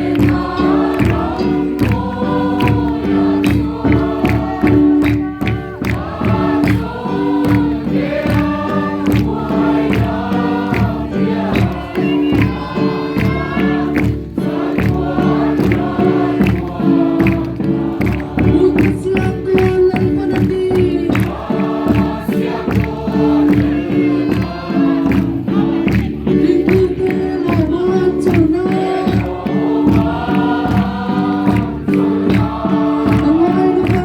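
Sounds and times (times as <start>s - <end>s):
steady beat: 0.0s - 25.7s
group singing a gospel hymn: 0.0s - 34.0s.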